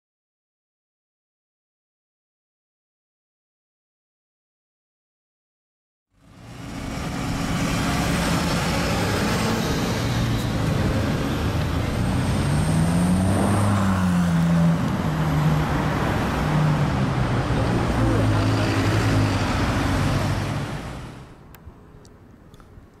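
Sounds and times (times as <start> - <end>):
street traffic: 6.1 - 23.0
car engine revving: 6.2 - 21.4.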